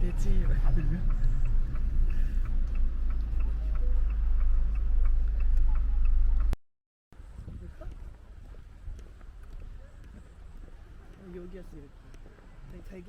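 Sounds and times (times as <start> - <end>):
low rumble inside moving car: 0.0 - 6.6
turn signal ticking: 0.0 - 6.6.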